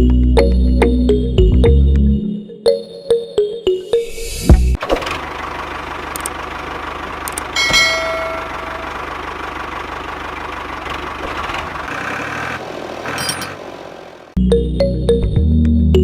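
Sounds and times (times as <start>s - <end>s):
metallic clink with ringing: 7.6s - 8.9s.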